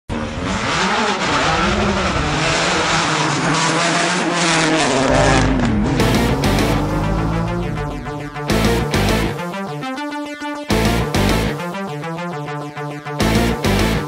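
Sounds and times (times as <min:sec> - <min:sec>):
racing car engine revving: 0:00.1 - 0:09.4
deep steady low tone: 0:05.2 - 0:09.8.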